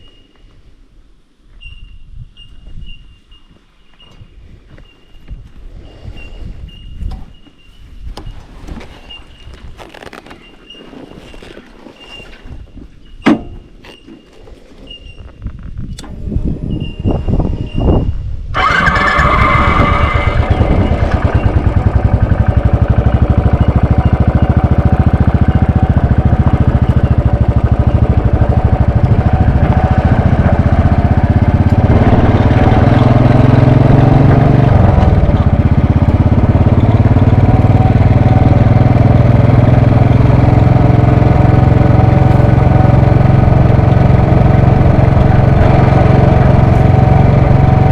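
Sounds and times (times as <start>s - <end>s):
motorcycle engine idling: 20.2s - 47.9s.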